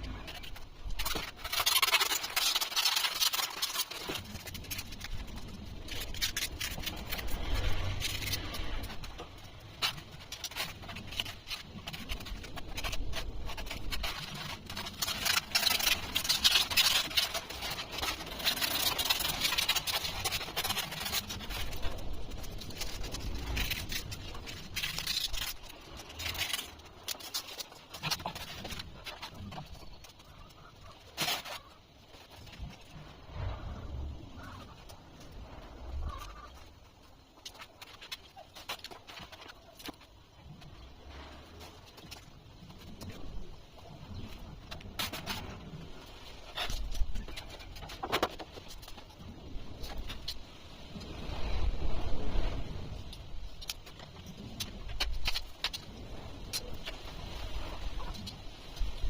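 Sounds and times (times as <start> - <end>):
foam squeaking and scraping: 0.0 - 59.0.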